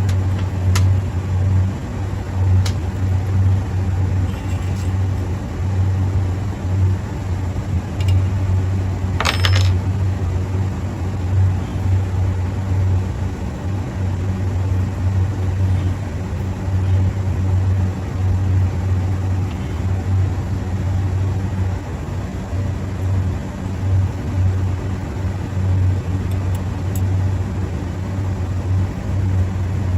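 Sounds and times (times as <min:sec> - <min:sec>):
low machine hum: 0:00.0 - 0:29.9
metallic clink: 0:09.2 - 0:09.8.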